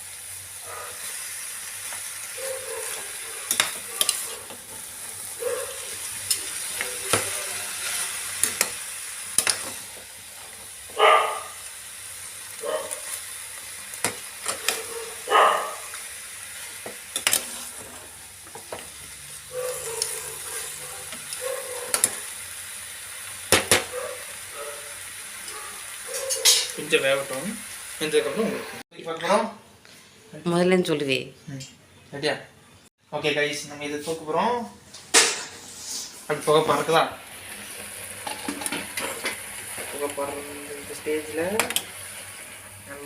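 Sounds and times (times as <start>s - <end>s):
food sizzling in a pan: 0.0s - 29.4s, 33.7s - 43.0s
spoon scraping a pan: 1.8s - 10.1s, 14.0s - 16.0s, 16.6s - 19.0s, 19.7s - 22.3s, 26.0s - 26.8s, 38.2s - 40.5s.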